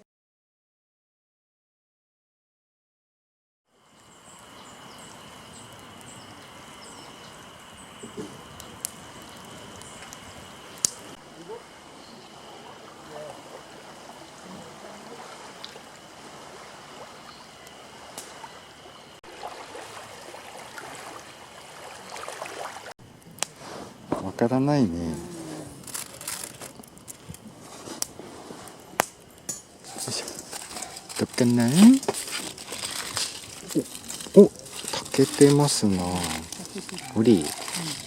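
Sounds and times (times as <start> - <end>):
campfire hiss: 3.7 - 38.0
fire crackles and pops: 4.0 - 11.3, 17.6 - 18.5, 22.7 - 38.0.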